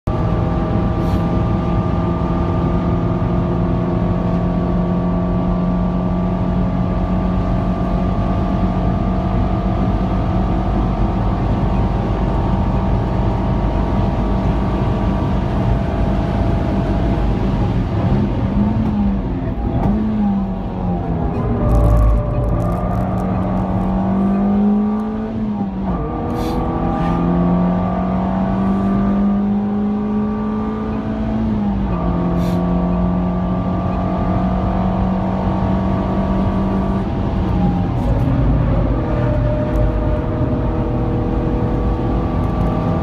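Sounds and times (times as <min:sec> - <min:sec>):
car engine at high revs: 0:00.1 - 0:43.0.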